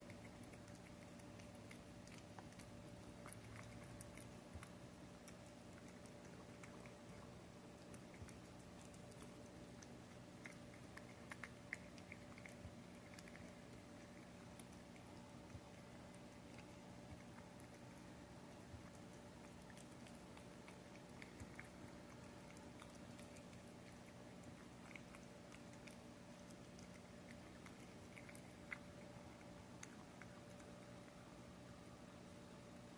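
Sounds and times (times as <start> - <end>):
little irregular clicks: 0.0 - 31.3
cat chewing wet food: 0.0 - 32.9
low steady hum: 0.0 - 32.9.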